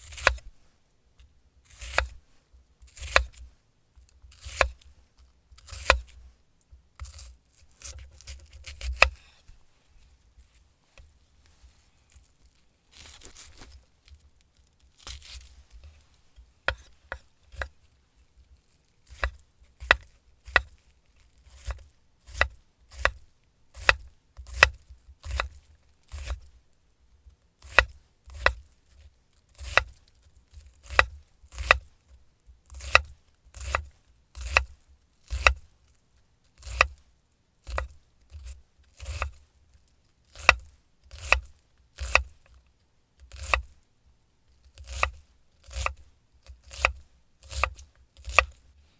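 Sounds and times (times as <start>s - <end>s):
knife chopping on wooden board: 0.0s - 0.4s, 1.7s - 2.2s, 2.9s - 3.4s, 4.3s - 4.8s, 5.6s - 6.2s, 7.0s - 9.4s, 16.6s - 17.8s, 19.0s - 20.7s, 21.5s - 26.4s, 27.6s - 28.6s, 29.6s - 30.0s, 30.8s - 31.9s, 32.7s - 34.7s, 35.3s - 35.6s, 36.6s - 37.0s, 37.6s - 39.4s, 40.3s - 42.3s, 43.3s - 43.7s, 44.8s - 46.0s, 46.6s - 48.6s.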